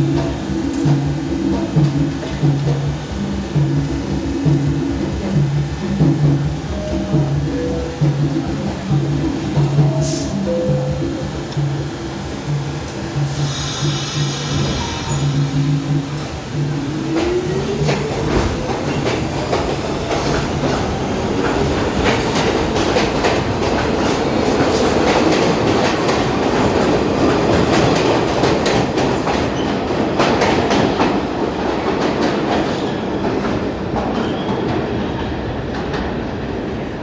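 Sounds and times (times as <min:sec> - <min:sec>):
train wheels clattering over rail joints: 0:11.4 - 0:34.9.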